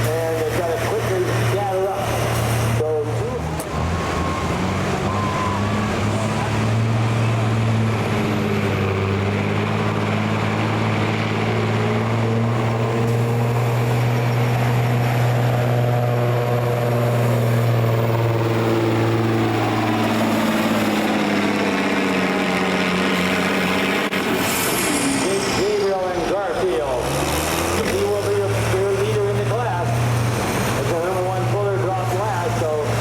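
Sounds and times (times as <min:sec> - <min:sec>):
engine running under load: 0:00.0 - 0:33.0.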